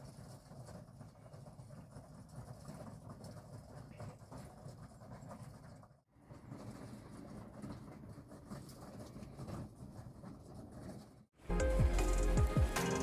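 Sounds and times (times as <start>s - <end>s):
music: 11.5s - 13.0s.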